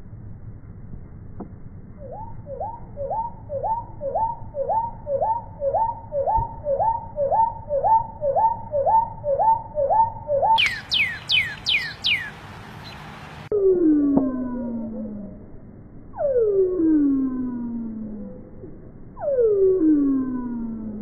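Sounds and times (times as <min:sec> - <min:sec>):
bird high falling whistles: 0:02.0 - 0:12.3
bird call sliding notes: 0:02.0 - 0:13.2.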